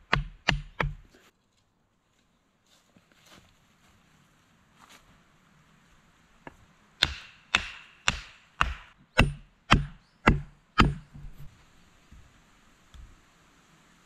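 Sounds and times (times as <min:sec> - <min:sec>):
hand tool chopping wood: 0:00.0 - 0:01.1, 0:07.0 - 0:11.5.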